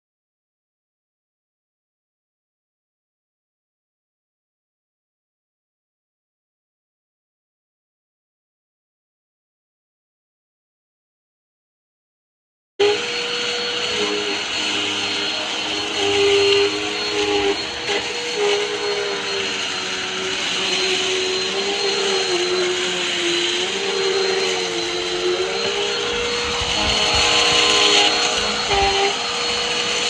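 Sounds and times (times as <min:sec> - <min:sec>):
vacuum cleaner running: 0:12.8 - 0:30.0.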